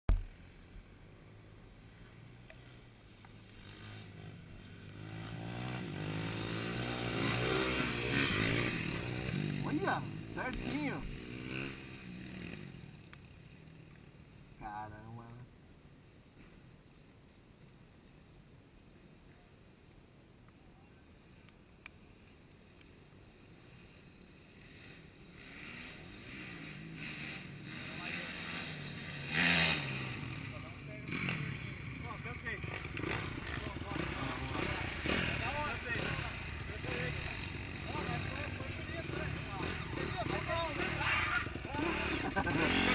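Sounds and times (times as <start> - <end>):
dirt bike engine revving: 3.5 - 13.6, 24.4 - 42.9.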